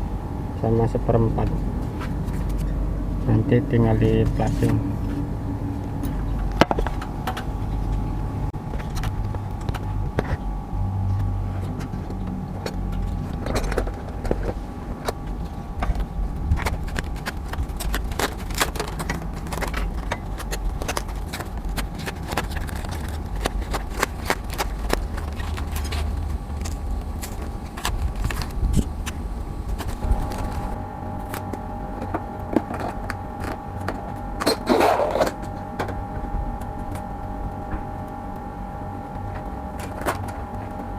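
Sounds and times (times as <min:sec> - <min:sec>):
faint steady hum: 0:00.0 - 0:40.9
steady low rumble: 0:00.0 - 0:40.9
hand tools clicking and scraping: 0:12.6 - 0:36.0.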